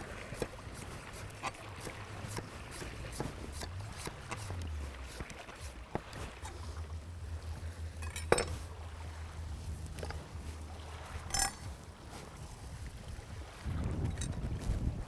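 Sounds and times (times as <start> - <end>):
steady low rumble: 0.6 - 15.0
cooking gear knocking and clinking: 11.3 - 11.7.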